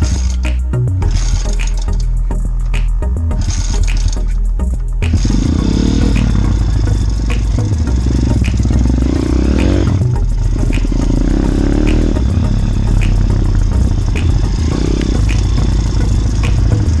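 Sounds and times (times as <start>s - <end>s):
motorbike engine revving: 5.1s - 17.0s.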